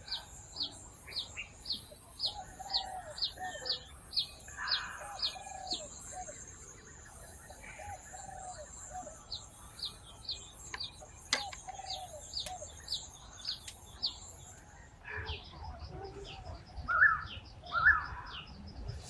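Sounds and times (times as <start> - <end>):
bird chirping: 0.0 - 19.0
bird cooing: 2.2 - 3.9, 4.5 - 6.4, 7.5 - 9.2, 11.4 - 12.7.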